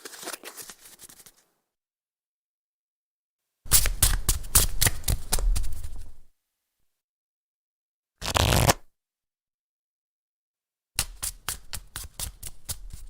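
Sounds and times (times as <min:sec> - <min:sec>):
playing cards shuffling: 0:00.0 - 0:01.4, 0:08.2 - 0:08.8.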